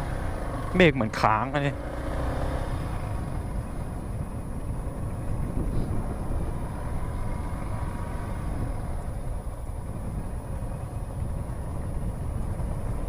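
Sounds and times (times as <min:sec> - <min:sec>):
motorcycle engine running: 0:00.0 - 0:13.0
road and wind noise: 0:00.0 - 0:13.0.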